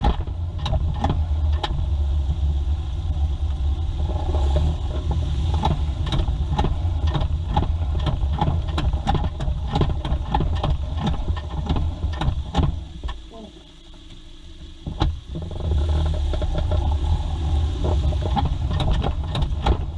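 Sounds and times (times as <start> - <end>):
car engine rumbling: 0.0 - 19.9
engine knocking: 4.0 - 13.1, 14.9 - 19.9.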